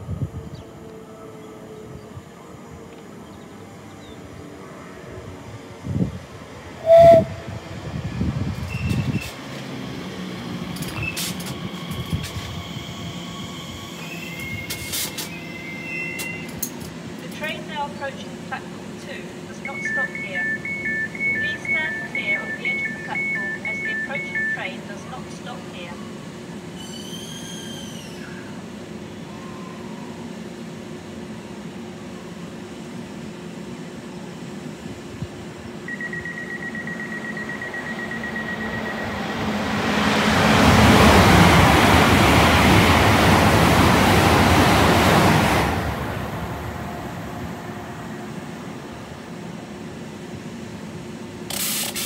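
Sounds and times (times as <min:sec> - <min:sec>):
train passing at speed: 0:00.0 - 0:51.5.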